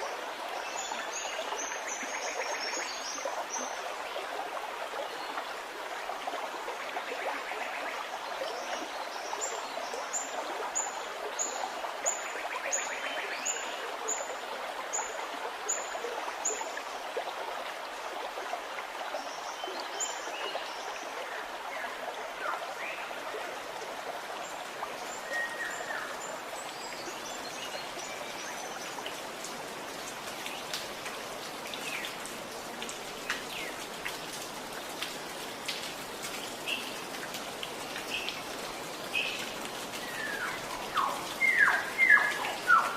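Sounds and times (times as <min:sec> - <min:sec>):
gurgling running water: 0:00.0 - 0:42.9
birds singing: 0:24.6 - 0:32.3, 0:35.6 - 0:42.9.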